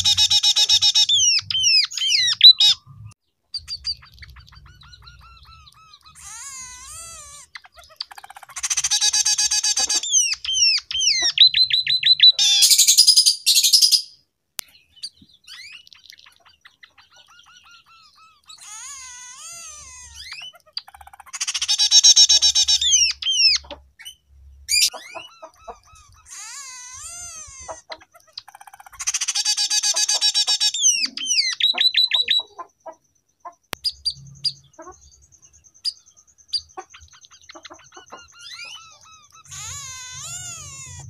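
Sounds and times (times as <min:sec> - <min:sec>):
bird buzzy rattling trills: 0:33.8 - 0:41.0.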